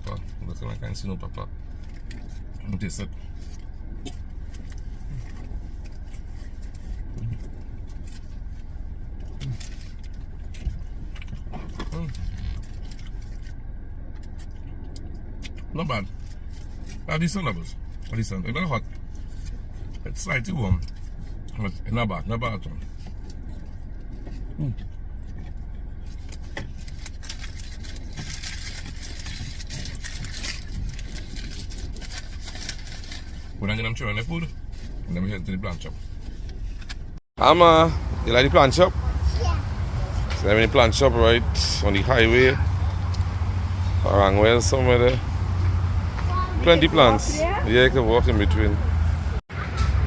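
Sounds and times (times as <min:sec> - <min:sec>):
car engine idling: 0:00.0 - 0:50.0
faint clicks and rustles: 0:22.6 - 0:33.6.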